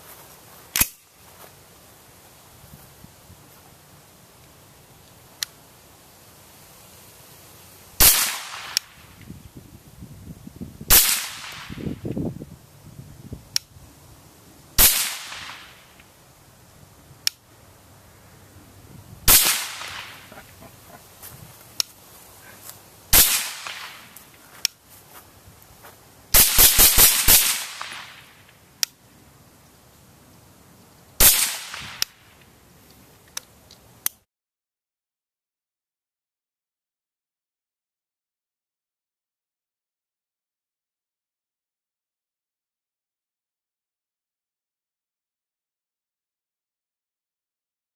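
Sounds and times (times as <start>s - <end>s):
suppressed rifle shots: 8.0s - 9.0s, 10.9s - 11.8s, 14.8s - 15.8s, 19.3s - 20.4s, 23.1s - 24.1s, 26.4s - 28.4s, 31.2s - 32.2s.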